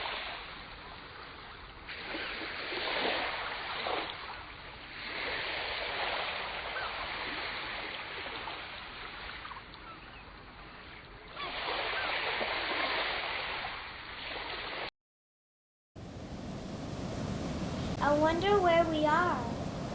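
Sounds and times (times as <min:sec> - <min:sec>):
ocean waves washing: 0:01.9 - 0:09.6, 0:16.0 - 0:19.9.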